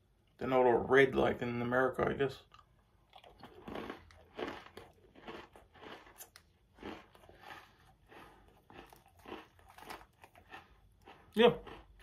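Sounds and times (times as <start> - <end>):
person chewing crunchy cookie: 2.4 - 12.0.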